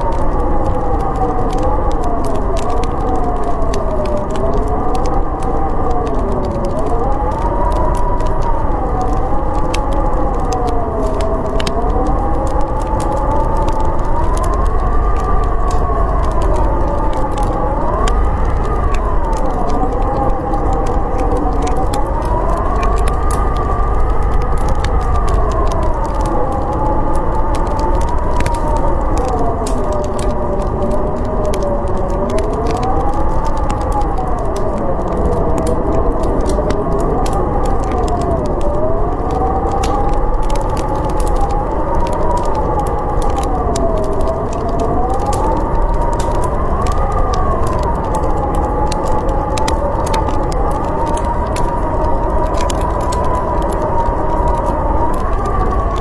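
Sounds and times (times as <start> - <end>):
howling blizzard wind: 0.0 - 56.0
wood fire crackling: 0.0 - 56.0.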